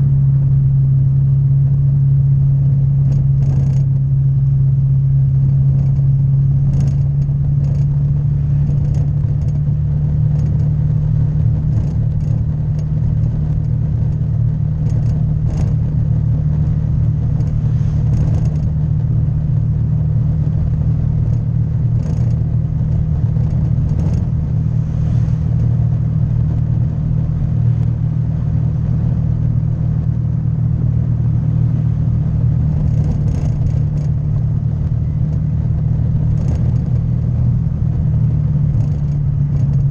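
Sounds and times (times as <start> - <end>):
light clicks and rattles: 3.1 - 4.1, 5.5 - 19.2, 20.7 - 27.9, 32.6 - 37.5, 38.6 - 39.9.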